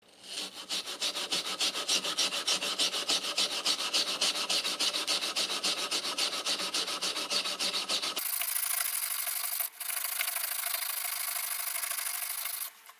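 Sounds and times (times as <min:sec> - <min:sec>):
hand tool rasping on a surface: 0:00.1 - 0:09.2.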